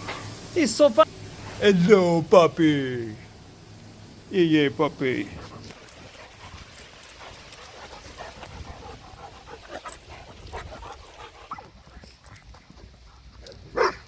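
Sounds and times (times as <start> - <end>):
dog panting: 5.2 - 13.5.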